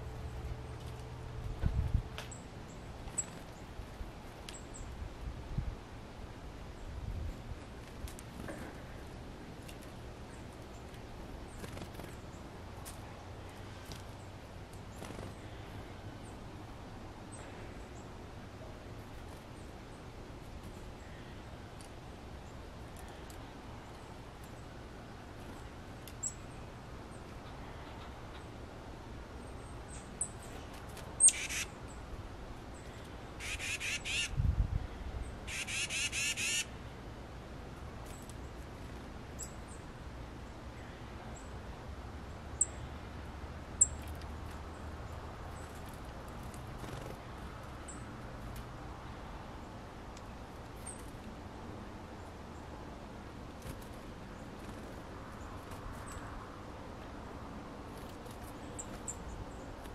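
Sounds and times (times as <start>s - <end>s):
harsh rattling bird calls: 29.4s - 32.1s, 32.7s - 34.4s, 35.4s - 36.8s
high bird chirps: 31.2s - 31.7s.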